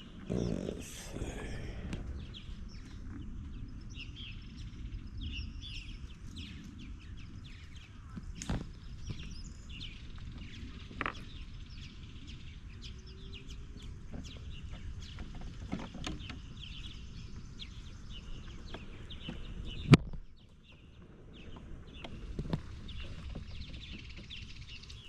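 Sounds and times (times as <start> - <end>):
steady low rumble: 0.0 - 13.6
small birds chirping: 0.0 - 25.0.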